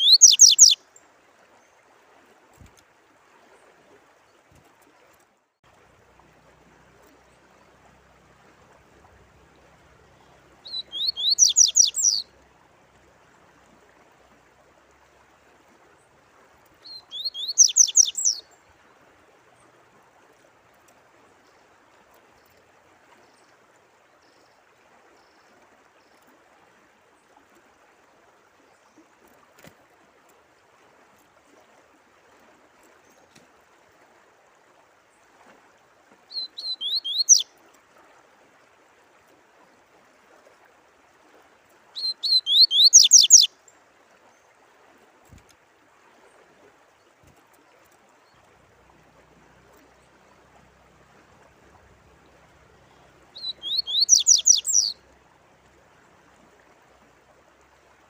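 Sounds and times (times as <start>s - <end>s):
songbird whistling: 0.0s - 0.8s, 10.6s - 12.3s, 16.8s - 18.5s, 36.3s - 37.5s, 42.0s - 43.5s, 53.4s - 55.0s
trickle of running water: 0.0s - 58.0s.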